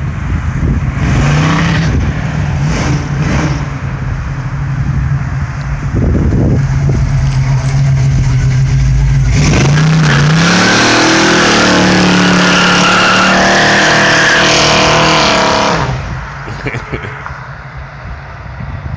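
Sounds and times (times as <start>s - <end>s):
car engine revving: 0.8s - 16.2s
tires squealing: 6.4s - 16.2s.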